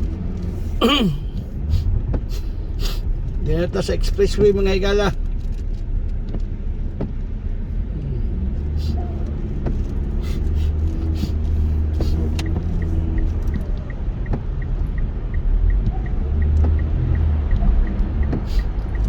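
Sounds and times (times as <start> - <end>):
road and engine rumble: 0.0 - 19.0
light even ticking: 9.2 - 19.0.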